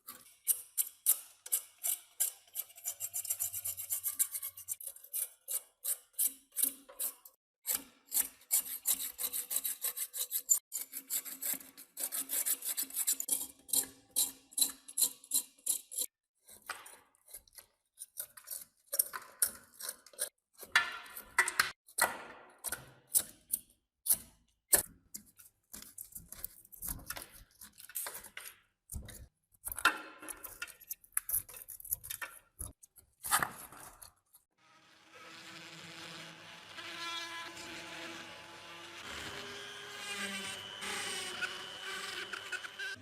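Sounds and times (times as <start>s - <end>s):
small motor tool buzzing: 34.6s - 43.0s.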